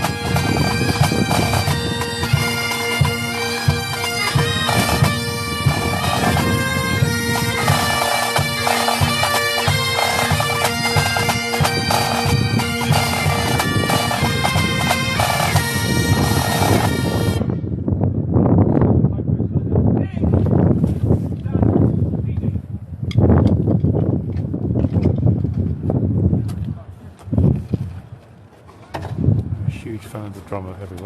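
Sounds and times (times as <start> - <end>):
drum strokes: 0.0 - 17.1
bagpipes playing march: 0.0 - 17.6.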